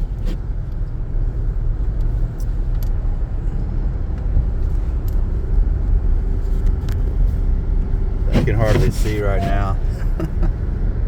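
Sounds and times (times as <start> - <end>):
car engine and tyres rumbling: 0.0 - 11.0
faint light ticks: 1.9 - 3.0, 4.1 - 5.2, 6.5 - 7.1.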